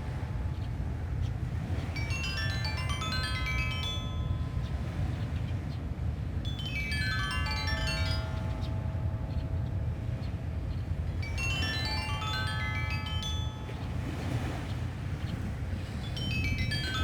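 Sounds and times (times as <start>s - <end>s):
low wind noise: 0.0s - 17.0s
stone xylophone runs: 6.5s - 14.0s.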